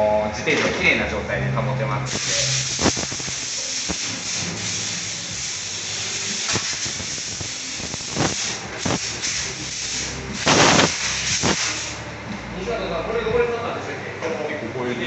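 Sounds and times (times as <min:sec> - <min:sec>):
aerosol can spraying: 0:02.1 - 0:12.0.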